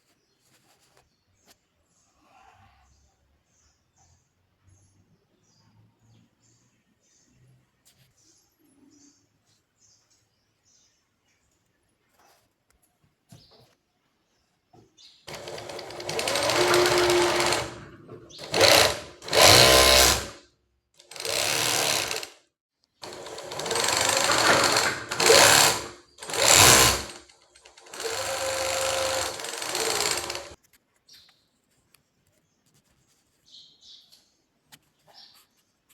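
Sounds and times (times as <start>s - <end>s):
industrial sewing machine stitching: 15.3s - 20.4s, 21.0s - 22.4s, 23.0s - 30.6s.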